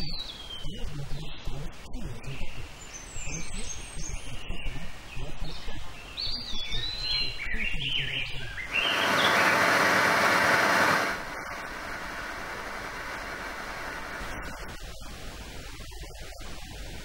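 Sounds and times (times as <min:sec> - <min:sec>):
songbirds chirping: 0:00.0 - 0:16.4
loud steady hiss: 0:08.3 - 0:17.0
low rumble: 0:11.0 - 0:14.8.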